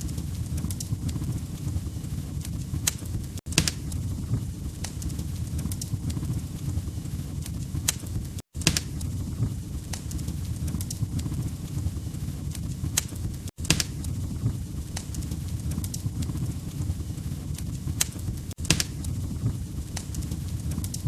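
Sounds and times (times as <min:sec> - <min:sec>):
log fire crackling: 0:00.0 - 0:21.0
low rumble of flames: 0:00.0 - 0:21.0
sharp pops: 0:02.8 - 0:04.0, 0:07.5 - 0:09.1, 0:12.9 - 0:14.1, 0:17.6 - 0:19.1.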